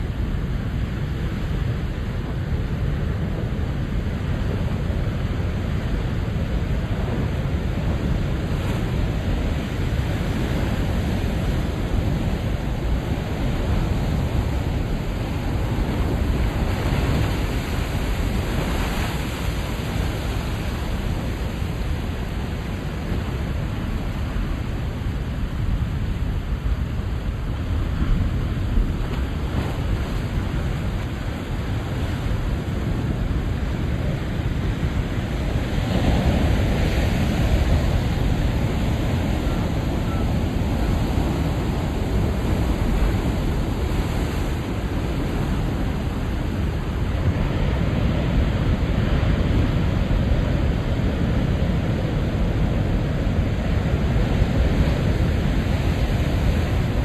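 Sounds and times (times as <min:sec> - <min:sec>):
ocean waves washing: 0:00.0 - 0:57.0
wind buffeting microphone: 0:00.0 - 0:57.0.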